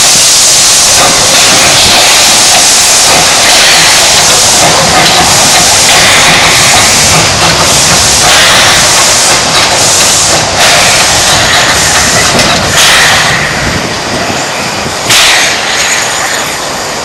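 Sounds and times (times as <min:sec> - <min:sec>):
steam hissing: 0:00.0 - 0:17.0
locomotive exhaust chuff: 0:00.8 - 0:14.0.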